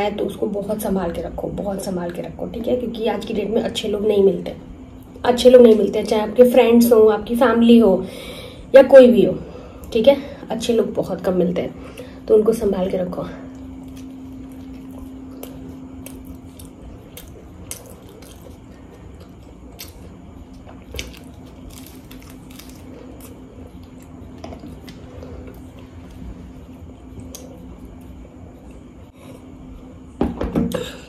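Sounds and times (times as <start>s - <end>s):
wet chewing sounds: 13.5s - 29.2s
pastry crunching: 13.8s - 26.2s.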